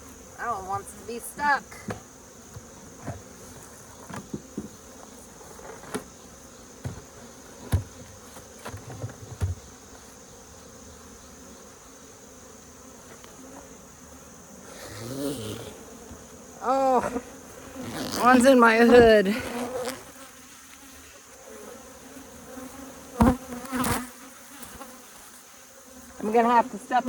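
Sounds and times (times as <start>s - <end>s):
bees buzzing: 0.0s - 27.0s
hive frames knocking: 3.9s - 4.9s, 6.8s - 9.7s.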